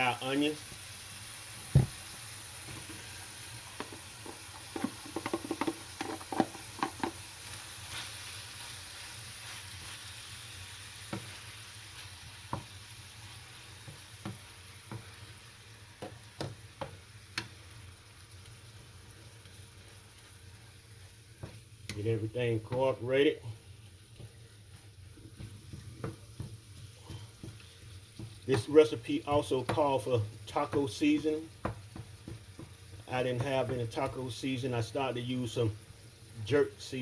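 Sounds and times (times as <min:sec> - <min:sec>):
meat sizzling in a frying pan: 0:00.0 - 0:37.0
utensil scraping a pan: 0:03.8 - 0:07.2.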